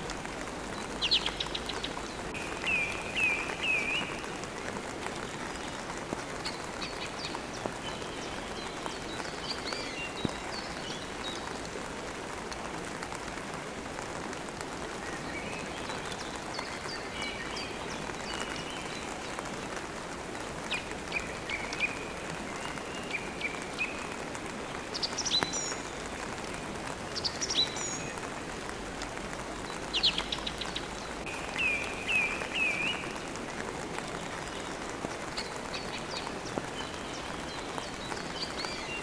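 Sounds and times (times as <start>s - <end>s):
steady rain: 0.0s - 39.0s
small birds chirping: 0.7s - 11.6s, 29.5s - 39.0s.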